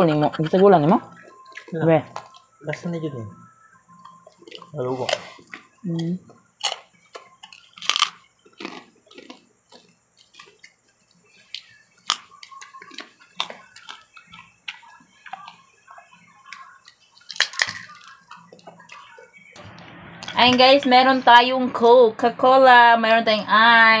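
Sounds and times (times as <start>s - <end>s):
crunching crispy food: 6.6s - 10.8s, 11.4s - 15.5s, 16.8s - 18.6s.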